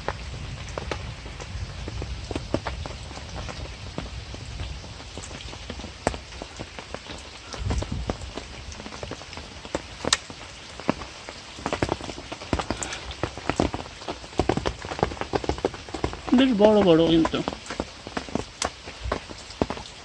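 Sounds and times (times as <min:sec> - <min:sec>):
light rain patter: 0:00.0 - 0:20.0.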